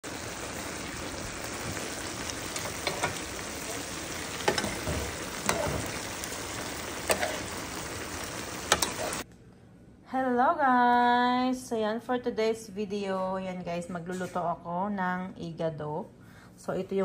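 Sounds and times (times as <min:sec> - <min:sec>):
food sizzling in a metal pan: 0:00.0 - 0:09.2.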